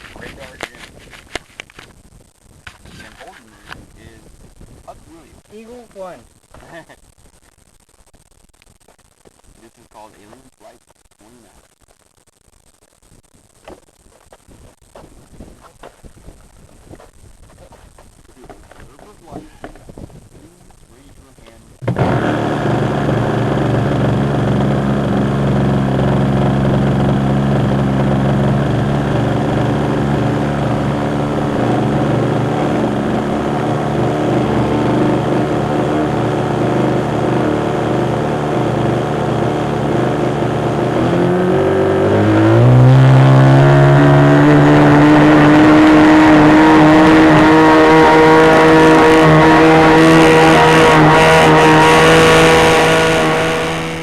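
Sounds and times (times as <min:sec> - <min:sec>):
model airplane engine revving: 0:21.8 - 0:54.0.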